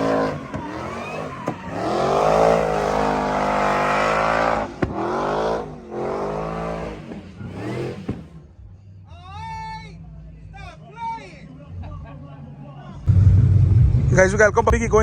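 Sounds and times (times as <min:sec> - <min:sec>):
vehicle engine revving hard: 0:00.0 - 0:08.4
tire squeal: 0:00.0 - 0:08.6.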